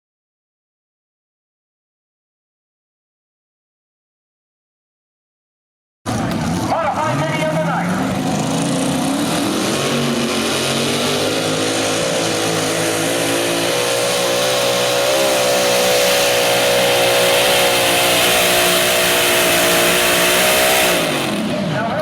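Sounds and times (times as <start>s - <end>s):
tractor engine revving high: 6.1s - 22.0s.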